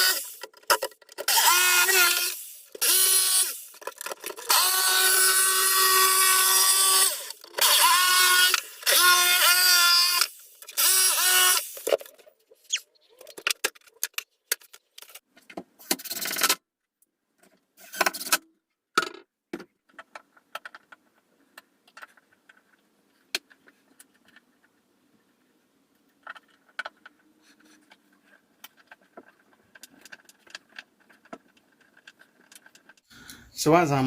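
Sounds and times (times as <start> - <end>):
power drill spinning up: 1.3 - 3.7, 4.4 - 11.9.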